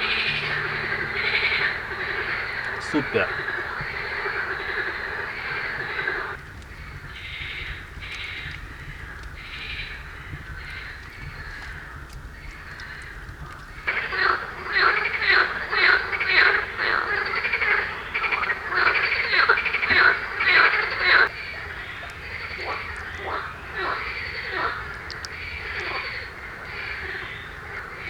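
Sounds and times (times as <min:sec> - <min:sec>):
frogs croaking in chorus: 0:00.0 - 0:28.0.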